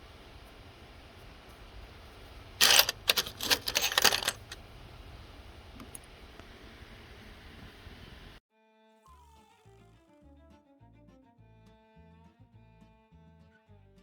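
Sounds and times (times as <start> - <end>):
hard objects clattering: 2.6 - 4.6.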